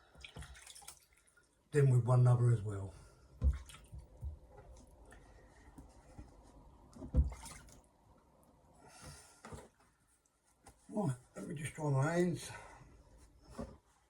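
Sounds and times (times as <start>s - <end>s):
water dripping and trickling: 0.0s - 1.8s, 3.4s - 5.2s.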